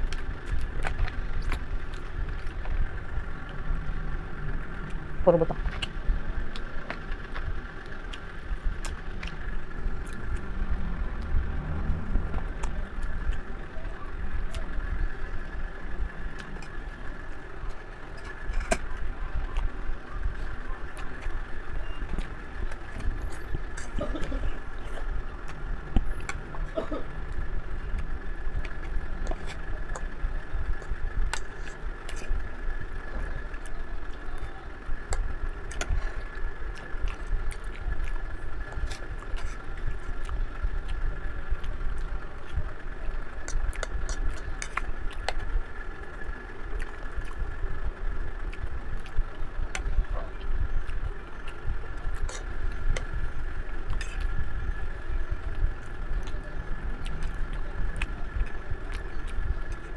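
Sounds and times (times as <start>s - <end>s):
chewing and mouth noises: 0.0s - 59.9s
faint high hum: 0.0s - 59.9s
low background rumble: 0.0s - 59.9s.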